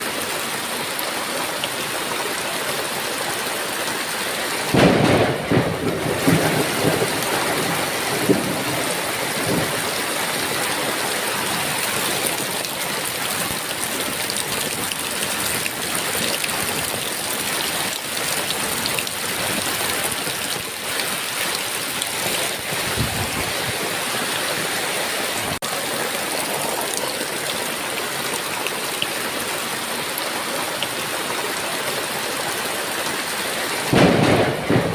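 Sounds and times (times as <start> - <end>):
heavy rain falling: 0.0 - 34.9
faint roll of thunder: 4.7 - 9.8, 33.9 - 34.9
thunderclap rumbling: 4.7 - 10.4, 22.2 - 24.0, 33.8 - 34.9.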